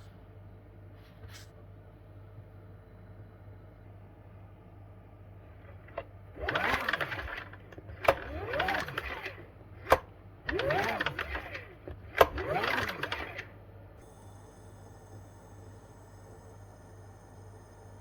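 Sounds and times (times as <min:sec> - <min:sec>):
engine turning over: 0:05.6 - 0:13.6
generator recoil starter pulls: 0:05.7 - 0:13.5.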